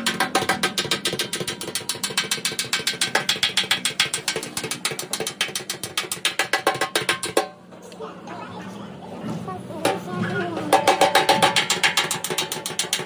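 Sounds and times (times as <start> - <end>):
rapid even clicking: 0.0 - 7.5.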